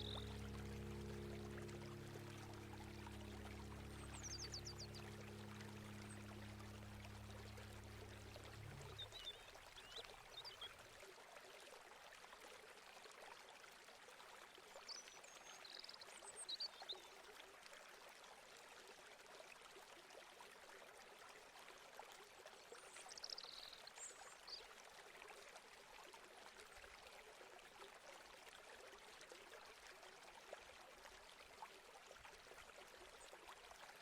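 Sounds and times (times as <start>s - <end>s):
low hiss: 0.0s - 9.0s.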